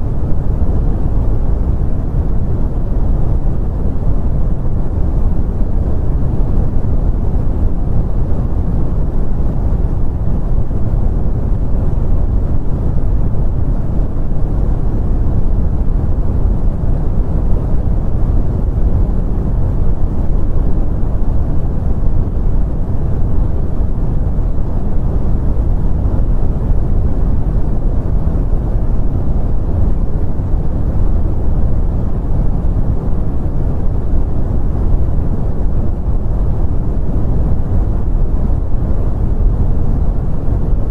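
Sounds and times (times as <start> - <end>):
brown noise: 0.0 - 40.9.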